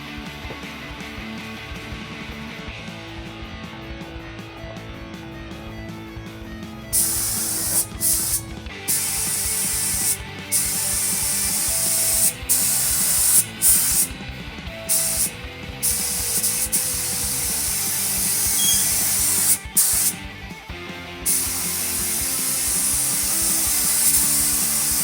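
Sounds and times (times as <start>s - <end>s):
paint spray gun hissing: 6.9s - 14.1s, 14.9s - 20.3s, 21.3s - 25.0s.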